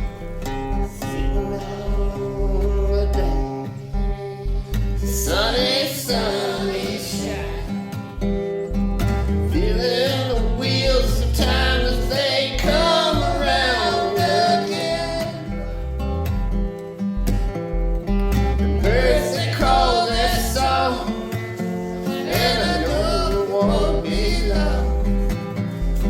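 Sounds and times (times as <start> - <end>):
acoustic guitar: 0.0 - 26.0
low bass line: 0.0 - 26.0
person singing: 0.8 - 7.9, 9.4 - 15.8, 18.8 - 26.0.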